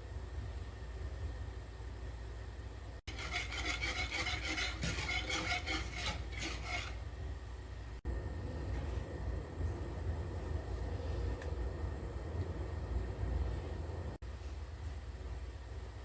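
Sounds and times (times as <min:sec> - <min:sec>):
low steady hum: 0:00.0 - 0:16.0
fast stirring in a bowl: 0:03.1 - 0:07.2.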